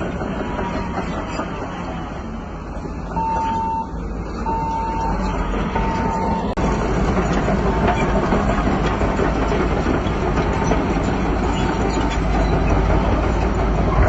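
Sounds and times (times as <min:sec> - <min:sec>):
diesel engine running: 0:00.0 - 0:14.0
reversing alarm beeping: 0:03.1 - 0:06.6.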